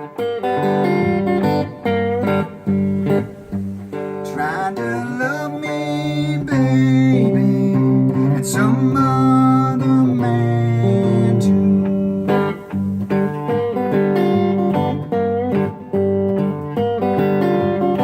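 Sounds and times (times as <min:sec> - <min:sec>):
acoustic guitar blues: 0:00.0 - 0:18.0.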